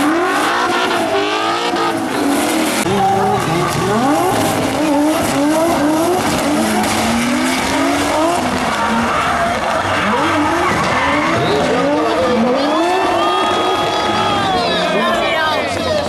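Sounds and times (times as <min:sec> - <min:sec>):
car engines revving: 0:00.0 - 0:16.0
tyres squealing: 0:03.2 - 0:16.0.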